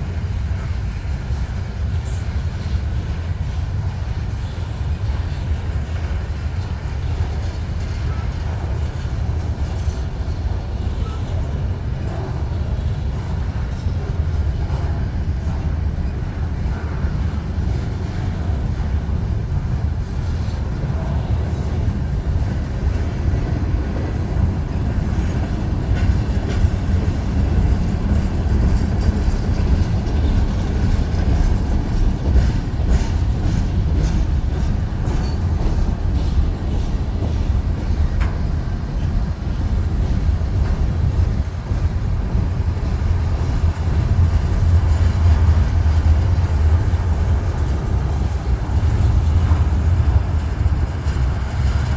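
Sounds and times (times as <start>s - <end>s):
freight train rumbling: 0.0s - 51.9s
train wheels clicking: 0.0s - 51.9s.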